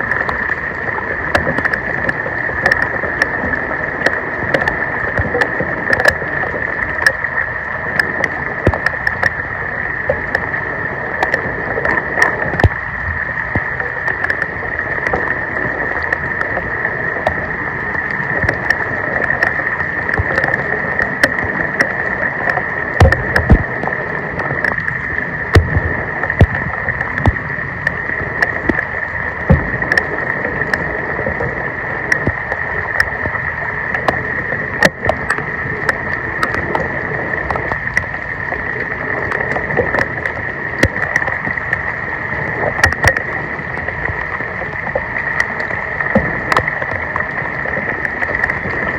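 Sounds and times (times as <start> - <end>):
floodwater rushing and splashing: 0.0 - 48.9
knocks and clicks: 23.0 - 23.8, 25.5 - 28.8, 29.5 - 30.1.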